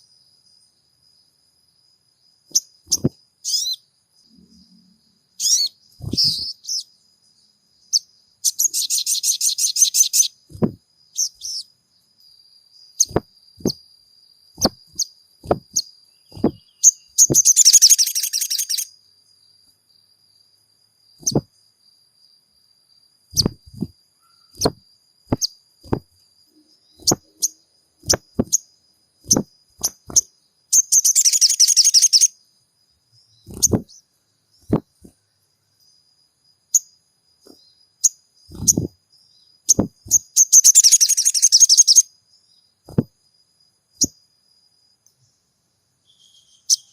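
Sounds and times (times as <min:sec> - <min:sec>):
high buzzy bird trills: 0:02.5 - 0:13.9, 0:14.6 - 0:19.0, 0:21.2 - 0:21.5, 0:23.3 - 0:32.4, 0:33.2 - 0:35.2, 0:36.7 - 0:42.2.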